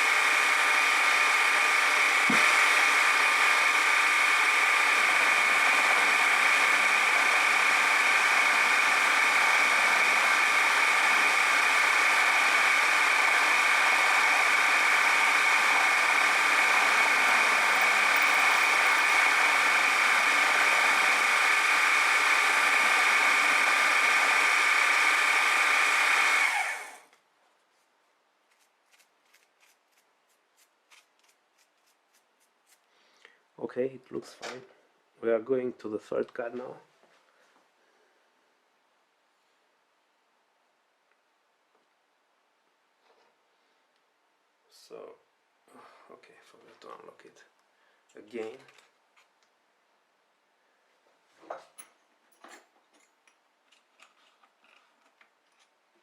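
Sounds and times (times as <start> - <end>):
milling machine whining: 0.0 - 27.0.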